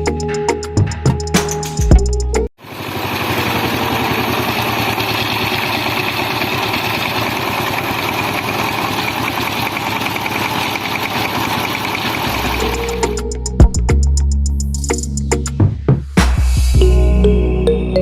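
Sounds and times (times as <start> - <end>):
small motor buzzing rattle: 2.6 - 13.2.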